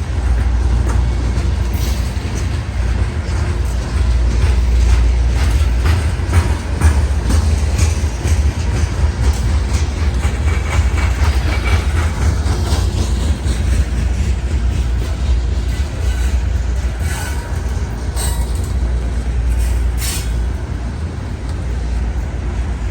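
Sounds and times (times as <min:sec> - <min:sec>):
train rumbling past: 0:00.0 - 0:22.9
wheels clicking over rail joints: 0:00.0 - 0:22.9
faint high wheel squeal: 0:15.6 - 0:20.7.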